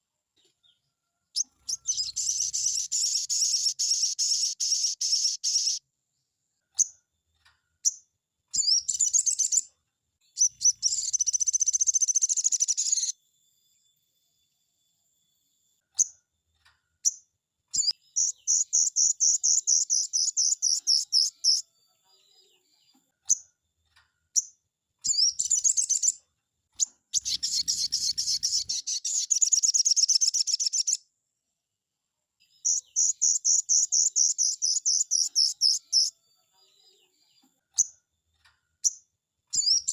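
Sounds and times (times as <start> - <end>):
sharp bird chips: 1.4 - 5.8, 10.4 - 13.1, 27.2 - 31.0, 32.7 - 36.1
bird fast high trills: 27.2 - 29.2.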